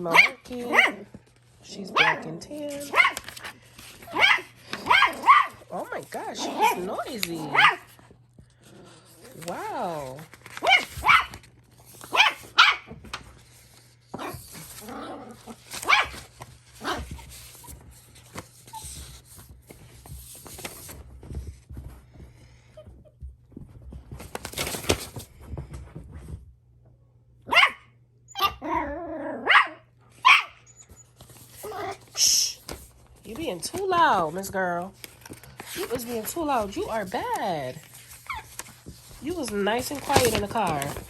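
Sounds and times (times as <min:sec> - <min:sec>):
puppy barking in short yaps: 0:27.5 - 0:28.6.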